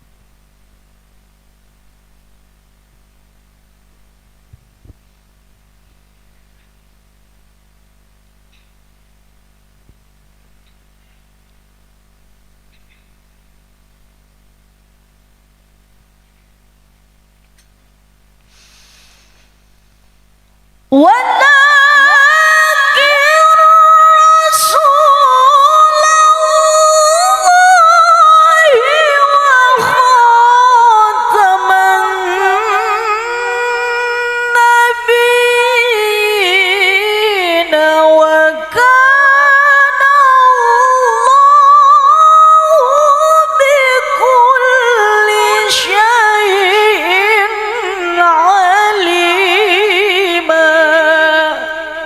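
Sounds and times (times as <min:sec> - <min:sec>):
woman chanting melodically: 0:20.9 - 0:52.0.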